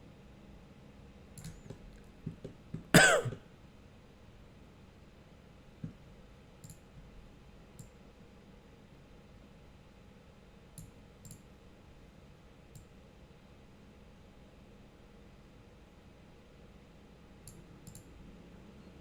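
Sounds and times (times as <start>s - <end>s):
computer mouse clicking: 1.4s - 2.9s, 6.6s - 6.8s, 7.8s - 8.0s, 10.8s - 11.4s, 17.4s - 18.1s.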